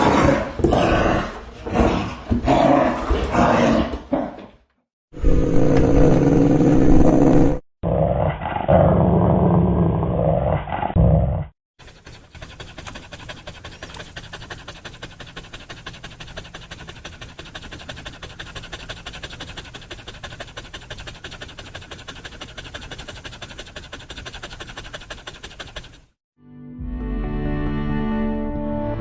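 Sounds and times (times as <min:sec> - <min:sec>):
dog panting: 0:11.8 - 0:26.2.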